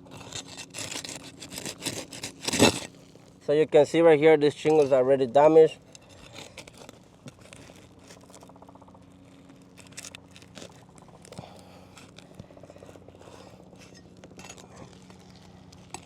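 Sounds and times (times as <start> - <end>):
shingles crackling and scraping: 0.0 - 3.4, 4.5 - 16.0
steady low hum: 0.0 - 16.0.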